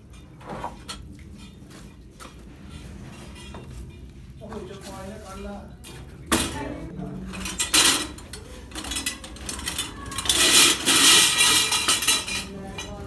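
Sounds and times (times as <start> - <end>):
metal objects clattering: 7.3 - 13.0.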